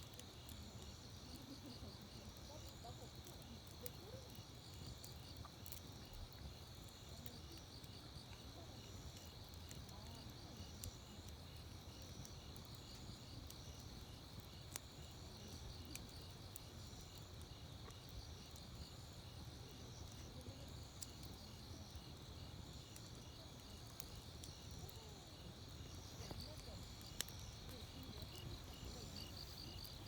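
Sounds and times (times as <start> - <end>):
campfire crackling and popping: 0.0 - 30.0
crickets trilling: 0.1 - 30.0
pulsing insect chirp: 9.1 - 30.0.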